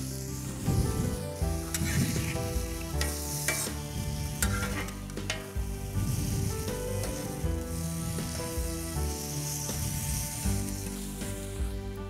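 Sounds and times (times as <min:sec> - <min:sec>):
chicken sizzling on a hot plate: 0:00.0 - 0:12.0
light background music: 0:00.0 - 0:12.0
metal spatula scraping a plate: 0:01.5 - 0:05.7.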